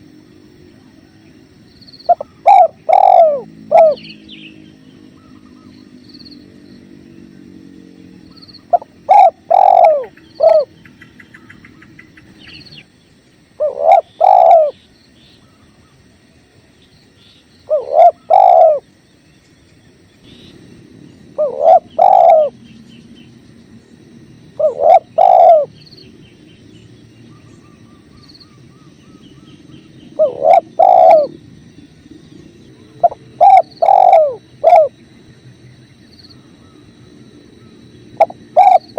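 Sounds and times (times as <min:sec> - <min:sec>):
small birds chirping: 0:00.0 - 0:38.9
dove cooing: 0:02.0 - 0:05.9, 0:08.3 - 0:12.5, 0:13.6 - 0:14.8, 0:17.7 - 0:18.9, 0:21.3 - 0:22.9, 0:24.5 - 0:25.9, 0:27.3 - 0:31.5, 0:32.8 - 0:35.0, 0:37.6 - 0:38.9.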